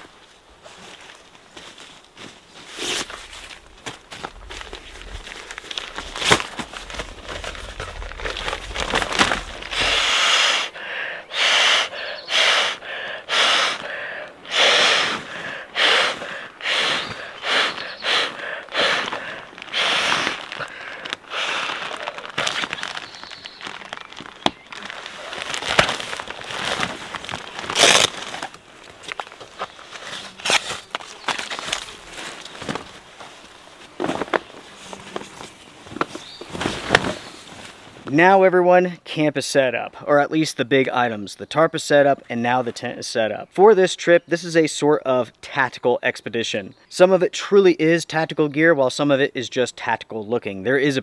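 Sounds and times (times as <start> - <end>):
rustle of tent nylon: 0.0 - 10.2, 17.0 - 38.1.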